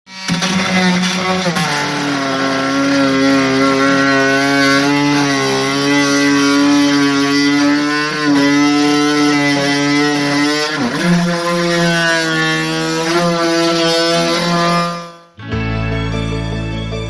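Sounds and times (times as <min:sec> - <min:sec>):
engine droning: 0:00.3 - 0:10.4.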